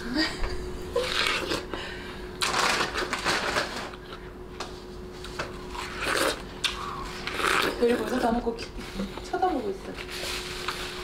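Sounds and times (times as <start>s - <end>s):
faint steady hum: 0.0s - 11.0s
crunchy wet chewing: 5.2s - 8.2s.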